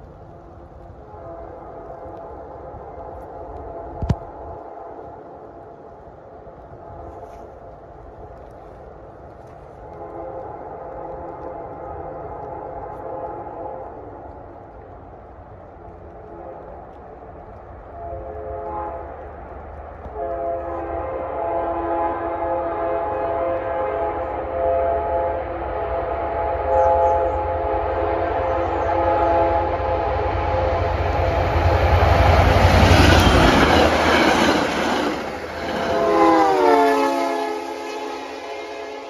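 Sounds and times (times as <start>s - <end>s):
train engine and wheel rumble: 0.0s - 39.0s
train air horn blasts: 1.0s - 4.2s, 9.8s - 14.1s, 17.9s - 19.1s, 20.1s - 39.0s.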